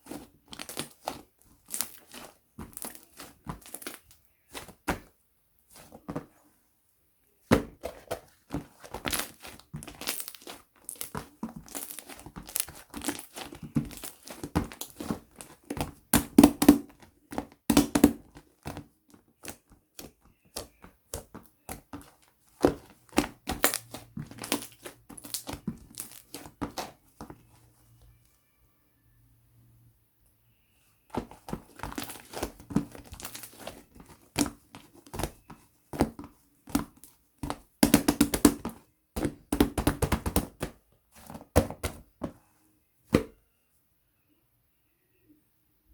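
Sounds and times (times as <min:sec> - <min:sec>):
slime squished by hand: 0:00.0 - 0:05.1, 0:07.5 - 0:18.8, 0:19.4 - 0:27.5, 0:31.1 - 0:42.1.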